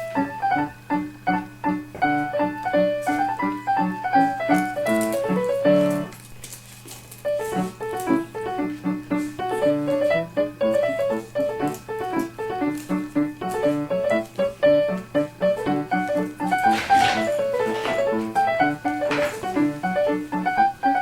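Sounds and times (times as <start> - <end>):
background piano music: 0.0 - 6.3, 7.1 - 21.0.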